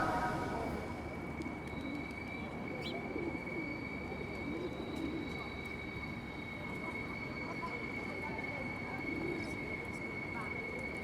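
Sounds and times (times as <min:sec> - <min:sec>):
thin high-pitched tone: 0:00.0 - 0:01.2.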